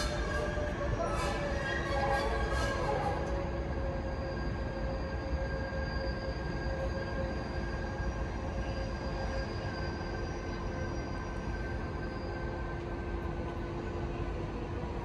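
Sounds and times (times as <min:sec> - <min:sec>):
electric locomotive rumble: 0:00.0 - 0:15.0.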